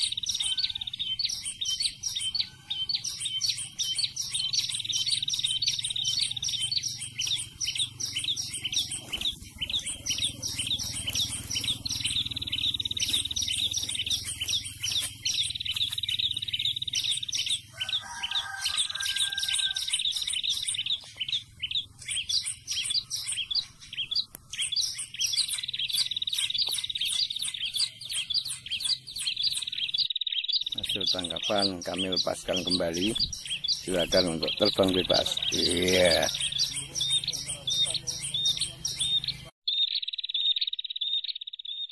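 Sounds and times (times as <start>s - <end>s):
bird high chirps: 0.0s - 41.9s.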